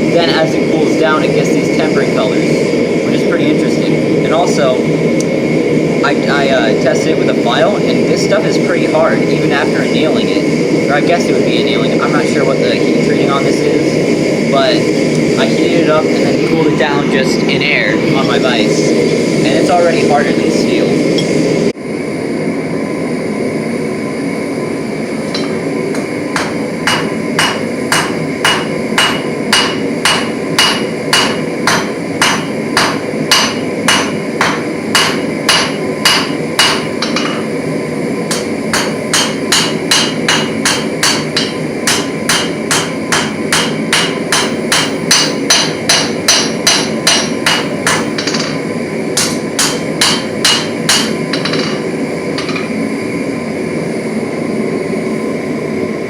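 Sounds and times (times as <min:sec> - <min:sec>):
steady rushing noise: 0:00.0 - 0:22.6
hammer striking metal on anvil: 0:25.3 - 0:37.5, 0:38.3 - 0:48.6, 0:49.2 - 0:52.8.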